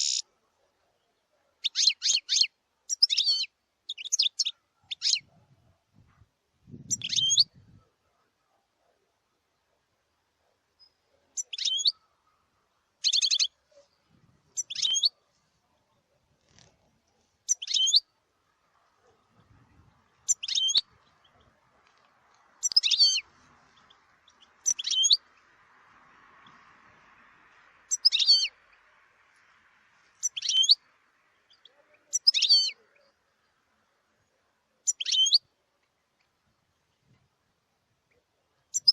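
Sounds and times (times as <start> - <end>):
goldfinch twittering: 6.9 - 7.5, 14.5 - 15.1, 17.5 - 18.0, 20.1 - 21.6, 22.6 - 25.5, 27.9 - 28.8, 30.2 - 30.9, 31.5 - 33.1, 34.9 - 35.4.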